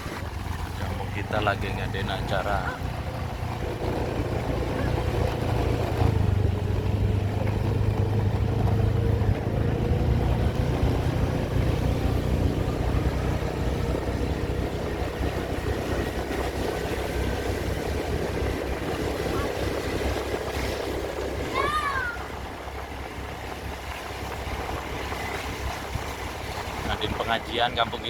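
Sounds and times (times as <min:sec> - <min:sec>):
vehicle engine running on road: 0:00.0 - 0:28.0.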